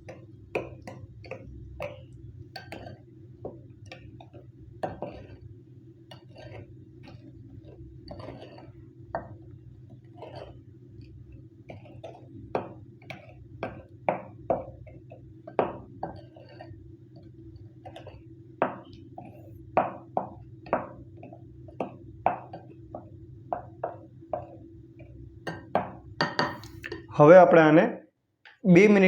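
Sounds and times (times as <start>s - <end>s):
spoon knocking against bowl: 0.0s - 5.4s, 11.7s - 17.2s, 17.8s - 27.1s.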